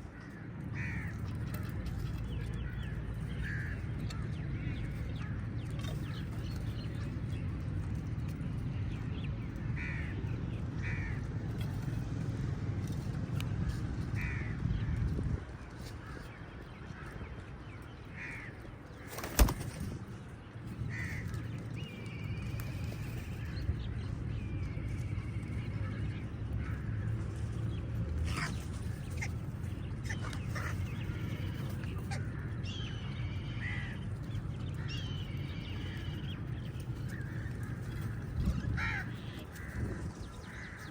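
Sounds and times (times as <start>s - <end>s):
crows cawing: 0.1s - 1.2s, 3.4s - 4.2s, 9.8s - 10.1s, 10.8s - 11.2s, 14.2s - 14.6s, 18.2s - 18.6s, 20.9s - 21.3s, 33.6s - 34.0s, 38.0s - 40.9s.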